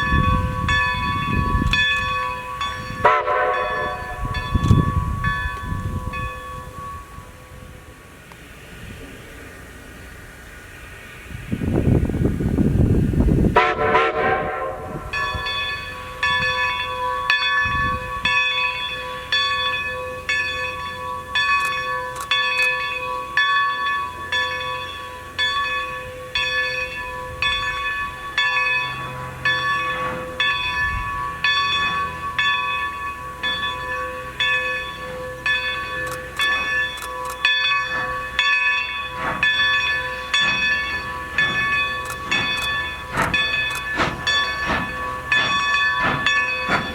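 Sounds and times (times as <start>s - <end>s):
locomotive bell ringing: 0.0s - 8.2s, 13.6s - 46.9s.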